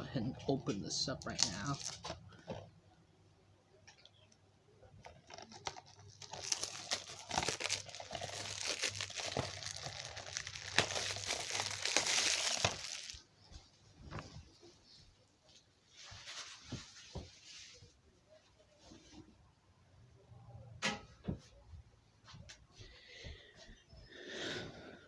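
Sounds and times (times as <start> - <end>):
plastic wrap tearing and crinkling: 1.2 - 2.2, 5.0 - 13.3.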